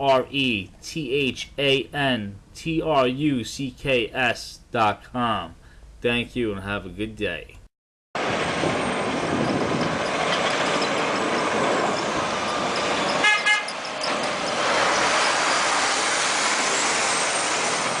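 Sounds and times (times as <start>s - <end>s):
road traffic noise: 8.2s - 18.0s
vehicle horn honk: 13.2s - 13.8s.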